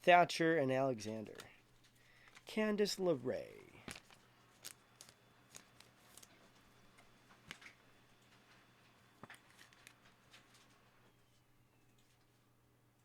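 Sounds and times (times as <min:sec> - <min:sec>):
low steady hum: 0:00.0 - 0:13.0
trading cards and plastic holders clicking: 0:01.2 - 0:02.5, 0:03.7 - 0:10.8.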